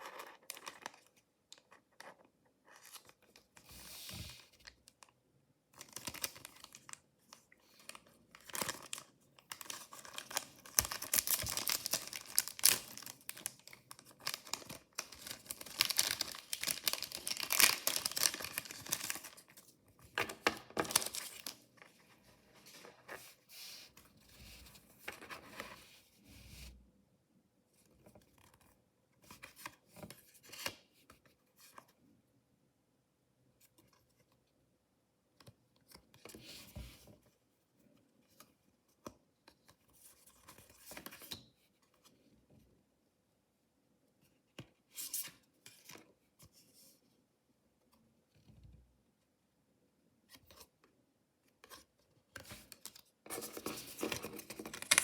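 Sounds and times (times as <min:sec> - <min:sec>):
packaging tearing and crinkling: 0:08.5 - 0:19.4, 0:20.8 - 0:21.5, 0:53.4 - 0:55.0.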